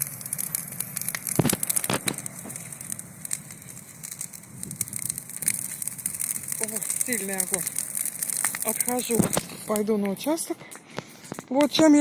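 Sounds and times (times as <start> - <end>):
bonfire crackling and popping: 0.0 - 12.0.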